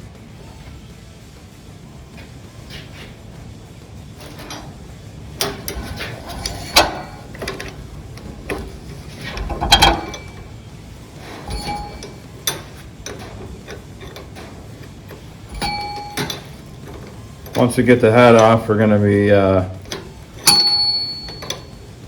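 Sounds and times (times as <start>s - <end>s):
metal tools clinking on fittings: 5.4s - 10.6s, 11.2s - 18.9s, 19.7s - 22.0s.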